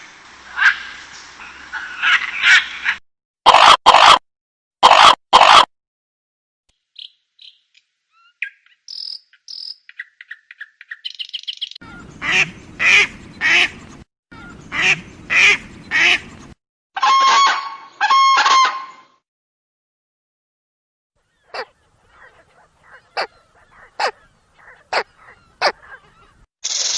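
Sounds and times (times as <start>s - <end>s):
high bird chirps and twitters: 6.8s - 12.2s
long clear bird calls: 6.8s - 16.5s, 21.2s - 26.9s
loud harsh bird calls: 11.1s - 16.4s, 21.2s - 26.5s.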